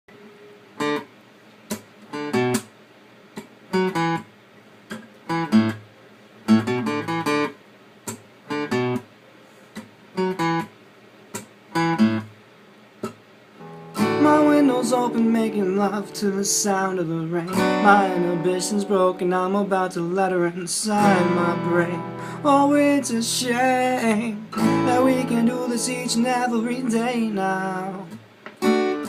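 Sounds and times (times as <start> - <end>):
acoustic guitar strummed chords: 6.5 - 7.6, 8.5 - 9.1, 11.7 - 12.3, 13.0 - 29.0.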